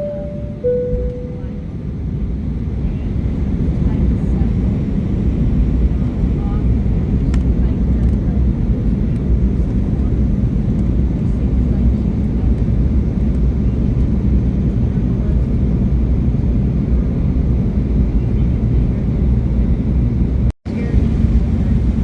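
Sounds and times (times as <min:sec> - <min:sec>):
jet engine rumble in cabin: 0:00.0 - 0:22.0.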